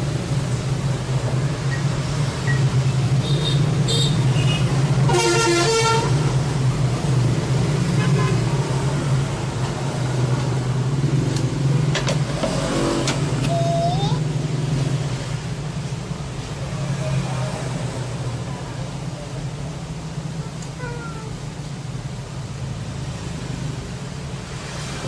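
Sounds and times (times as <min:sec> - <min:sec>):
road traffic noise: 0:00.0 - 0:25.0
vehicle horn: 0:03.2 - 0:06.2, 0:08.0 - 0:08.5.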